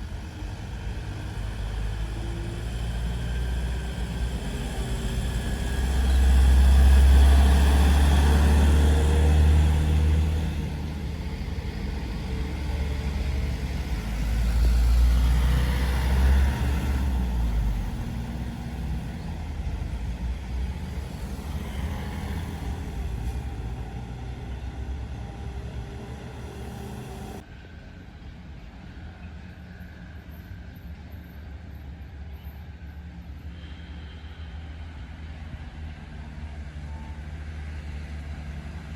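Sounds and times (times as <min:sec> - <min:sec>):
heavy trucks driving past: 0:00.0 - 0:27.5.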